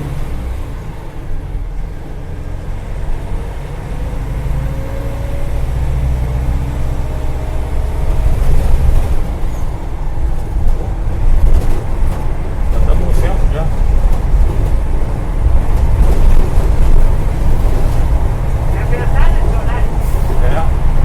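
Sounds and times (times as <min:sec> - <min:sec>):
bus engine rumble: 0:00.0 - 0:21.0.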